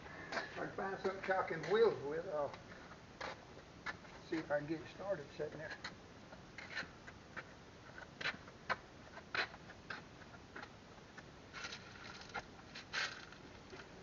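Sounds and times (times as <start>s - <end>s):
short scrape or rustle: 11.5s - 13.4s.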